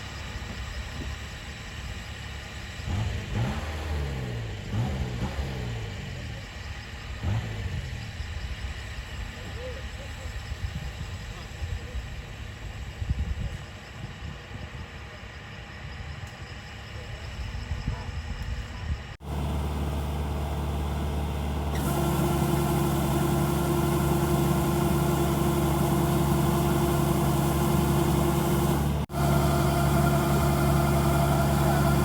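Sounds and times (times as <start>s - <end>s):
diesel engine running: 19.2s - 32.0s.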